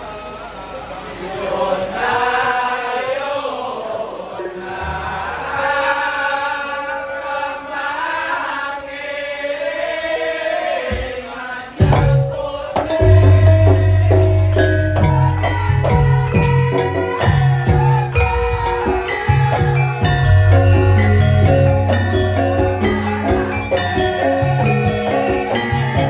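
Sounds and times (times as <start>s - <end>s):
person singing unaccompanied: 1.4s - 26.0s
sharp drum strikes: 10.9s - 24.2s
ringing metallophone notes: 12.9s - 26.0s
deep low tone: 13.0s - 17.5s, 20.1s - 23.5s.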